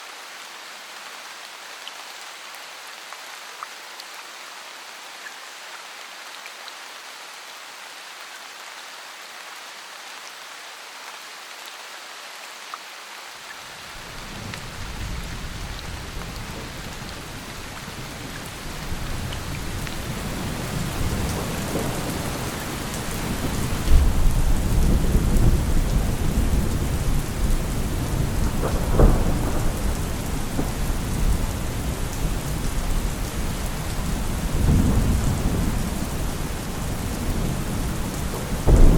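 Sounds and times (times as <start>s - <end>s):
rain falling: 0.0s - 38.9s
deep rolling thunder: 23.2s - 32.6s, 36.7s - 38.9s.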